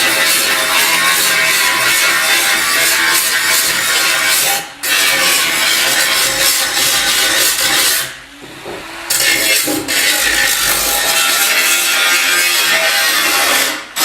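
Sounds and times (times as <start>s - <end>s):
tool grinding a surface: 0.0s - 14.0s.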